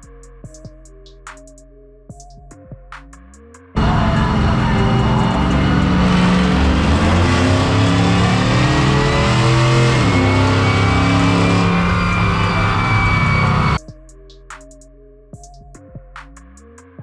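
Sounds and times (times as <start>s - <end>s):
car engine at high revs: 3.8s - 13.8s.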